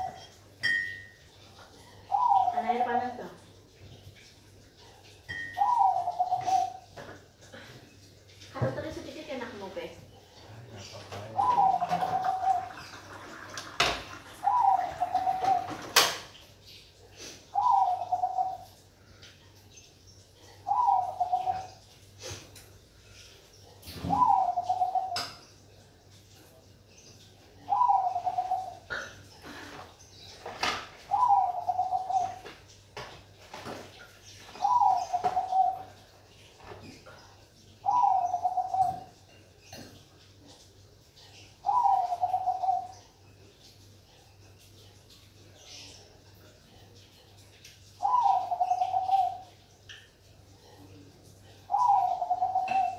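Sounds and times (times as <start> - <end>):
dove cooing: 0.0 - 0.4, 1.8 - 2.9, 5.3 - 7.0, 11.2 - 16.1, 17.5 - 18.8, 20.6 - 21.8, 23.9 - 25.3, 27.6 - 29.9, 31.1 - 32.5, 34.5 - 36.0, 37.8 - 39.2, 41.6 - 43.0, 48.0 - 49.6, 51.7 - 52.9.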